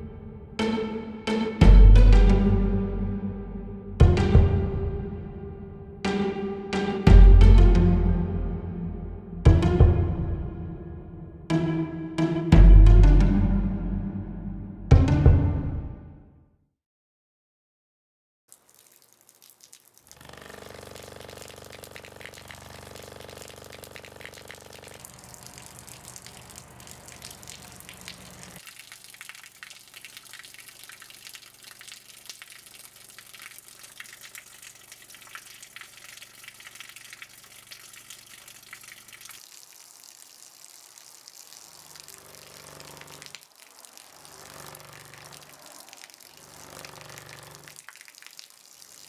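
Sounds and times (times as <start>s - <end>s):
running water splashing: 18.5s - 49.0s.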